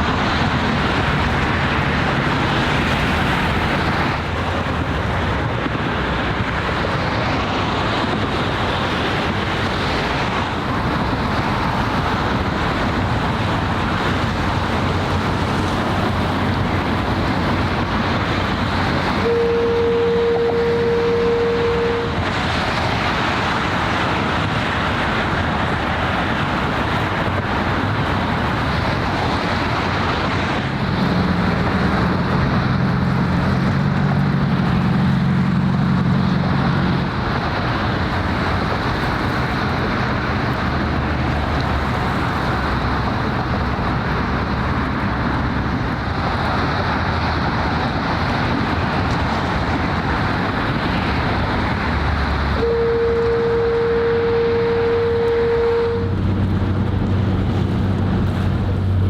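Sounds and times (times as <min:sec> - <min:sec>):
road traffic roar: 0:00.0 - 0:59.0
wind: 0:00.0 - 0:59.0
low droning tone: 0:19.2 - 0:22.3, 0:52.6 - 0:56.3.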